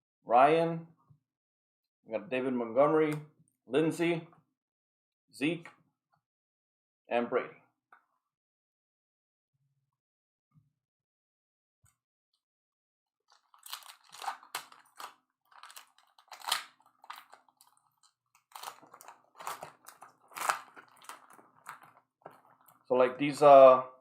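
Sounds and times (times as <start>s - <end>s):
card wrappers crinkling: 13.3s - 22.9s.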